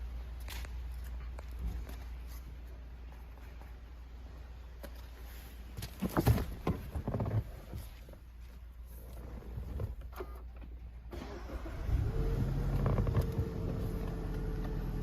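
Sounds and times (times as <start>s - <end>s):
low steady hum: 0.0s - 15.0s
knocks and clunks: 5.8s - 8.1s.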